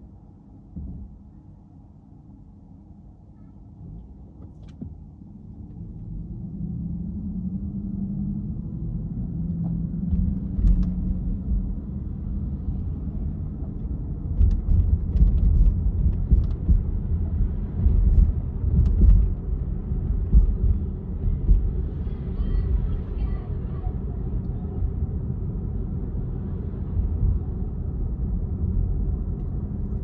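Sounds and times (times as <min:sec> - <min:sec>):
road and engine rumble: 0:00.0 - 0:30.0
knocks and bumps: 0:17.8 - 0:21.8.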